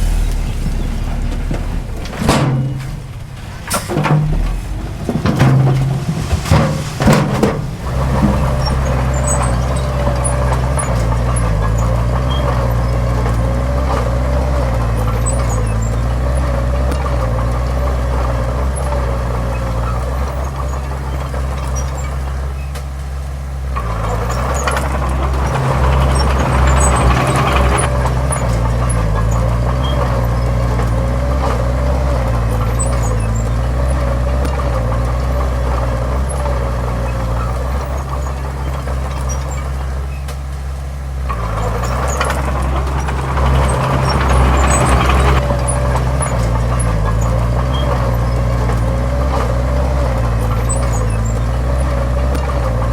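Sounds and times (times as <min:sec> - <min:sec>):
sharp knocks: 0:00.0 - 0:10.0
diesel machinery engine drone: 0:00.0 - 0:52.9.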